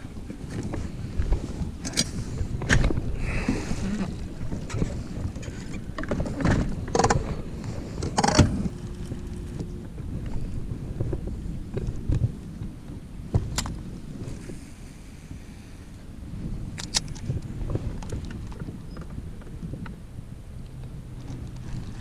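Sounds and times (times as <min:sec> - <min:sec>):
knocks and clatter on boat: 0:00.0 - 0:14.5, 0:16.4 - 0:20.0, 0:20.8 - 0:22.0
wind on microphone: 0:00.0 - 0:22.0.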